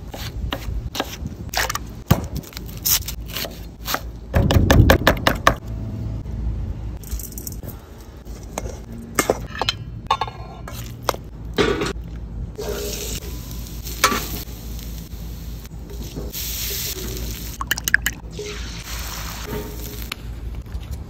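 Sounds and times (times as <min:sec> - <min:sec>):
potatoes sizzling on griddle: 0:12.6 - 0:17.6, 0:18.3 - 0:20.1.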